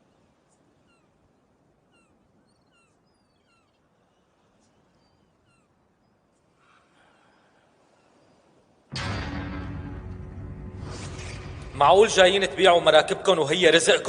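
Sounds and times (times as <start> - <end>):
birds chirping: 0.0 - 8.9
music: 8.9 - 12.2.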